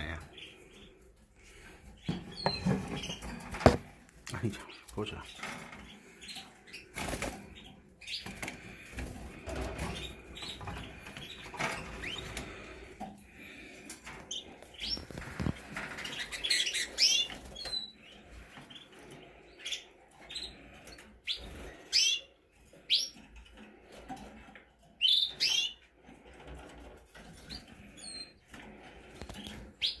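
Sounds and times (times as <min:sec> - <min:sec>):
canaries chirping: 0:00.0 - 0:30.0
wing fluttering: 0:13.6 - 0:19.0.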